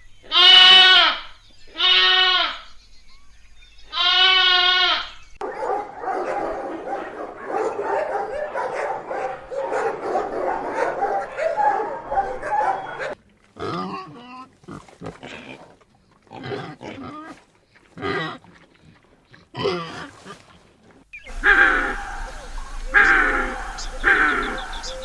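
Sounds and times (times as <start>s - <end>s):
pigs grunting and squealing: 12.8s - 25.0s.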